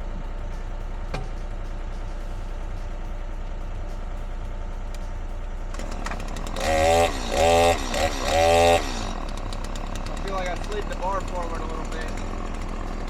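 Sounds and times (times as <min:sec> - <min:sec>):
engine idling: 0:00.0 - 0:13.0
chainsaw revving: 0:05.7 - 0:13.0.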